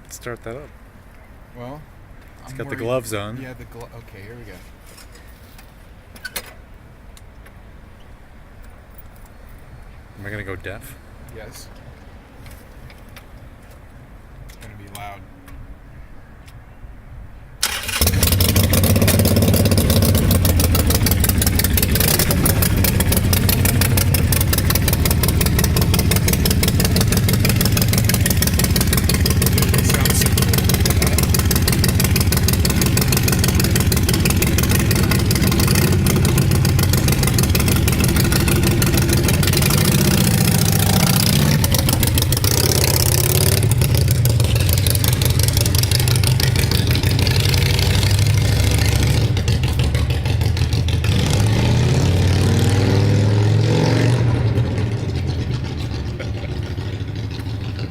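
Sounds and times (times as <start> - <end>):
motorcycle engine idling: 17.6 - 50.9, 55.1 - 57.9.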